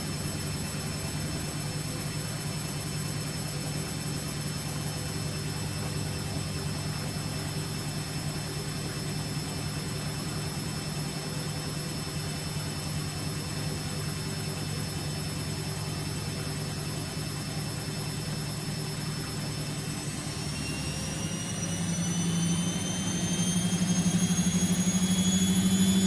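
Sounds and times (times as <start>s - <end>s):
washing machine spinning: 6.2s - 26.0s.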